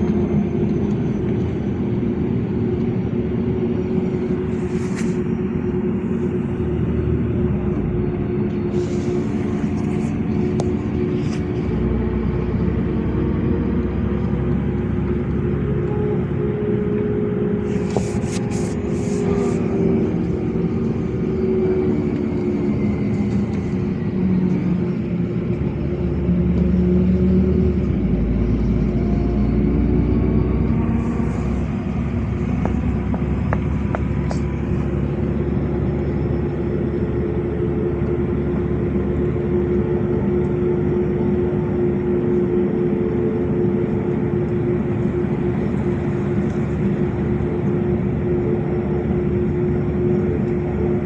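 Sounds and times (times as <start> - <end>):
bus engine rumble and hum: 0.0 - 51.0
tyre and road noise: 3.6 - 13.0, 13.9 - 28.0, 30.0 - 38.4.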